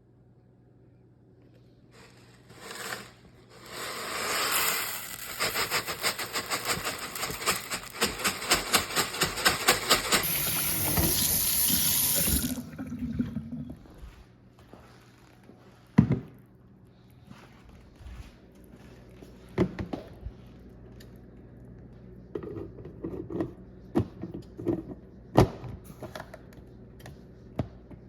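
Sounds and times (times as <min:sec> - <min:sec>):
running water: 0:10.2 - 0:14.0.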